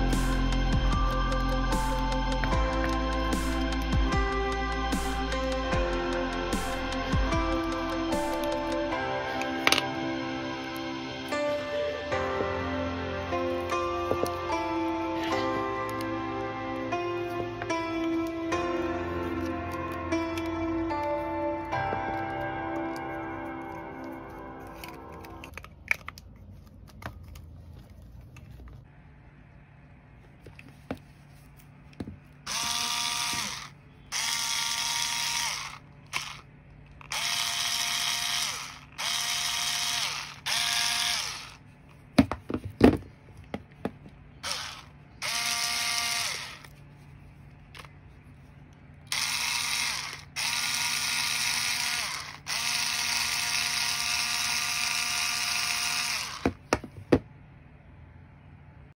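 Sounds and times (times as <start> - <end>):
cordless screwdriver motor running: 32.5 - 41.6, 44.4 - 46.7, 49.1 - 56.6.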